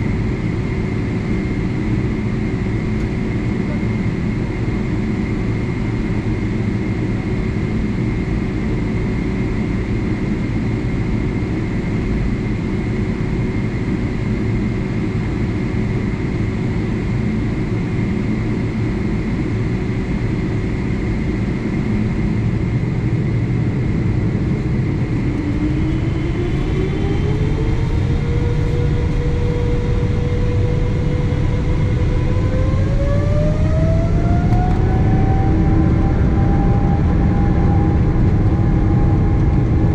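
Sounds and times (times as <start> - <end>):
airliner cabin hum: 0.0 - 39.9
jet engines spooling up: 10.8 - 39.9.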